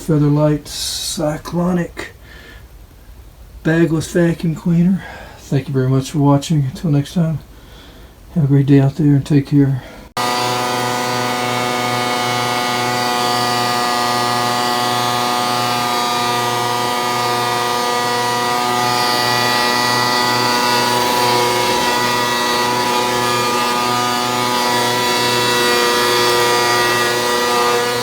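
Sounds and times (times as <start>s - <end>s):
vacuum cleaner motor hum: 10.2s - 28.0s.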